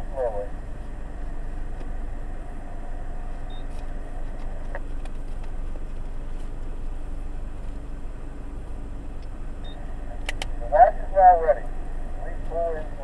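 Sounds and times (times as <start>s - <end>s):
car idling from inside cabin: 0.0s - 13.0s
faint clicks: 10.2s - 10.5s.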